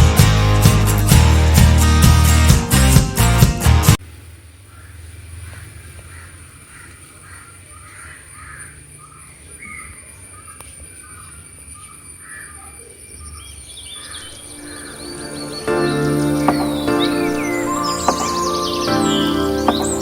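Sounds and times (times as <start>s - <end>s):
higher gliding bird chirps: 7.8s - 20.0s.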